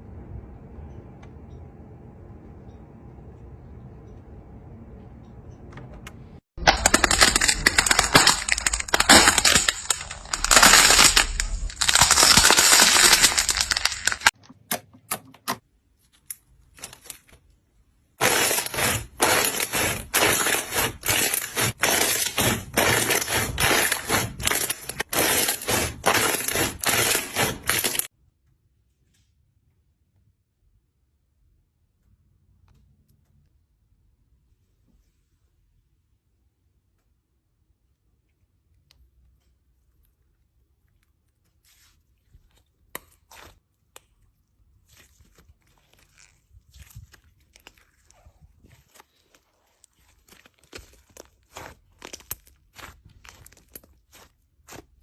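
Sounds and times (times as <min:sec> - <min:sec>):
brittle crunching and crackling: 0:06.6 - 0:14.4, 0:18.2 - 0:28.1, 0:40.9 - 0:55.0.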